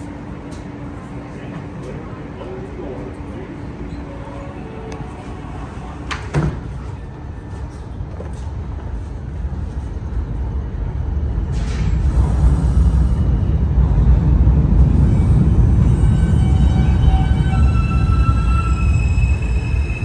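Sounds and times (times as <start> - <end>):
train rumbling: 0.0 - 20.0
subway doors sliding shut: 3.2 - 9.8, 10.6 - 20.0.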